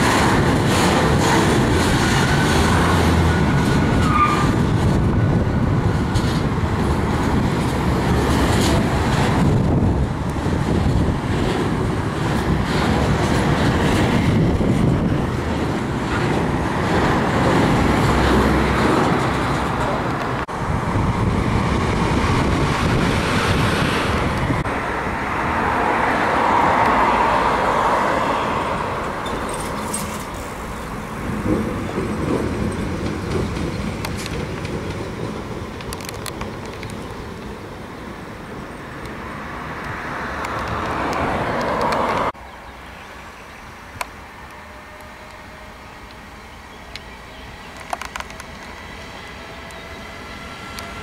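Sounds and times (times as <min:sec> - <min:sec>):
freight train wheels on rails: 0:00.0 - 0:42.4, 0:43.2 - 0:51.0
electric locomotives passing: 0:00.0 - 0:51.0.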